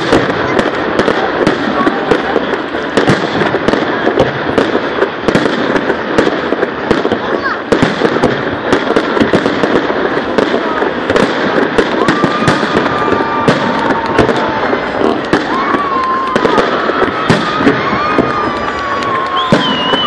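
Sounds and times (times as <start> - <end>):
fireworks bangs and crackles: 0.0 - 20.0
firework whistles: 10.6 - 20.0.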